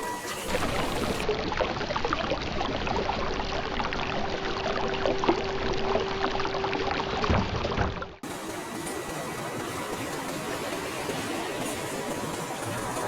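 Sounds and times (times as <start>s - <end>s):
electric motor whine: 0.0s - 1.2s.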